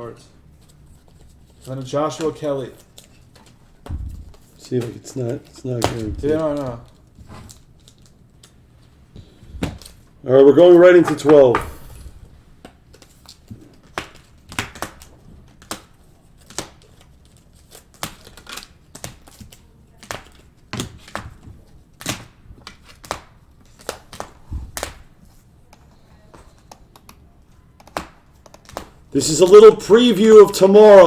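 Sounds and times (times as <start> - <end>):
wrappers crinkling and tearing: 0.5 - 8.6, 12.8 - 25.2.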